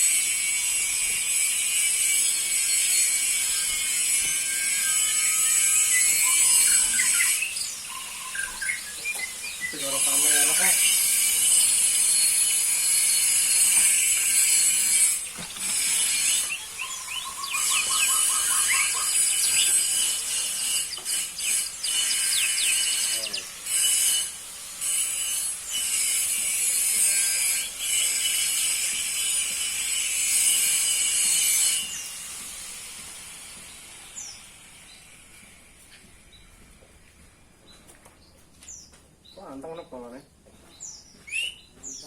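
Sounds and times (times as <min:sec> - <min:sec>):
canary singing trills: 0:01.3 - 0:28.8.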